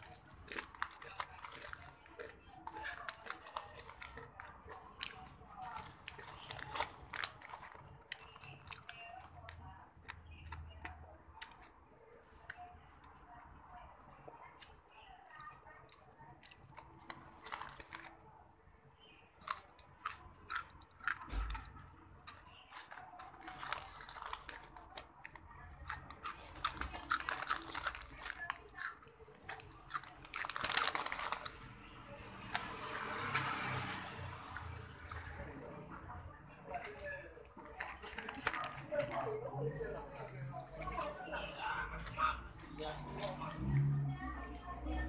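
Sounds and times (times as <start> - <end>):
crunchy snack being chewed: 0.0 - 10.7, 11.4 - 11.8, 14.6 - 18.3, 19.4 - 35.3, 36.8 - 39.4, 43.1 - 44.0.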